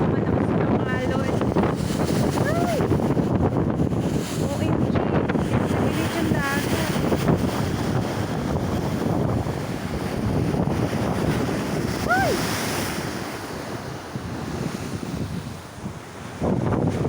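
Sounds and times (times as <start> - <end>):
heavy waves washing: 0.0 - 17.0
wind buffeting microphone: 0.0 - 17.0
short rising and falling cry: 12.0 - 12.4.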